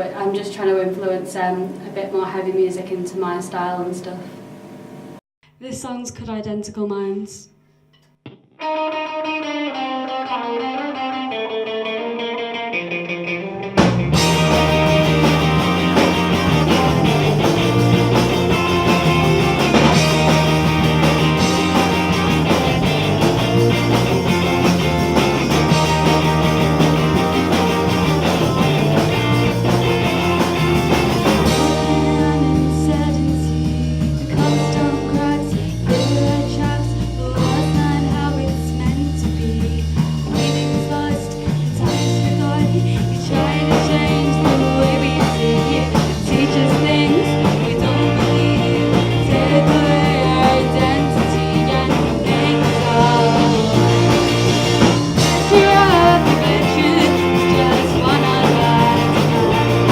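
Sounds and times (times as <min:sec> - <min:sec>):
rock band playing live: 0:08.6 - 0:59.9
woman singing: 0:31.4 - 0:59.9.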